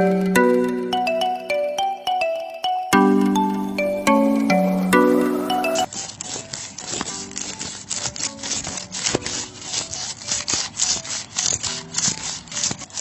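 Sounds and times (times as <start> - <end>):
music jingle: 0.0 - 5.9
scraping against a hard surface: 5.9 - 13.0.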